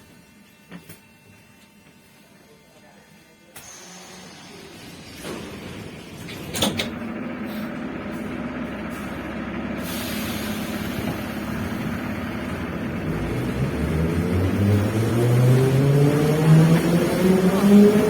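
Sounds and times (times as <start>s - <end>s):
train wheels rumbling: 4.7s - 18.0s.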